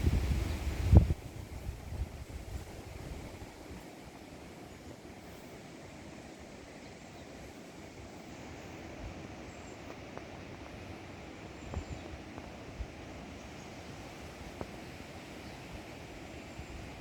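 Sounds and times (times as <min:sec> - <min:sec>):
wind rumble on microphone: 0:00.0 - 0:03.8
wind in trees: 0:00.0 - 0:17.0.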